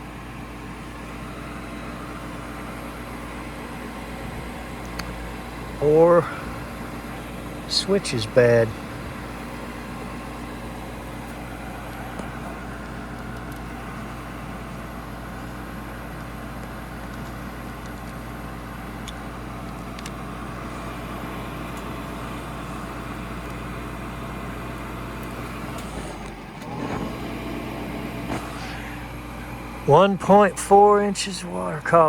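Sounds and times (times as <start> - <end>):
furnace motor humming: 0.0 - 32.0
rush of air: 28.2 - 29.6.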